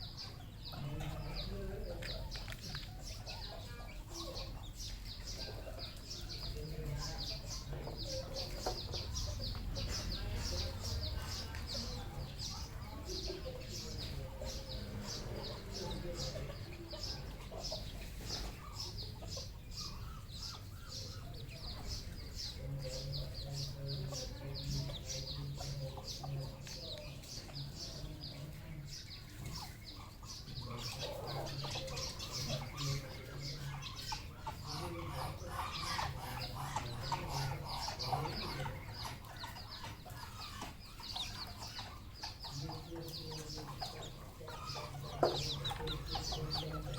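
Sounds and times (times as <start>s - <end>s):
junglefowl clucking: 29.4s - 46.9s.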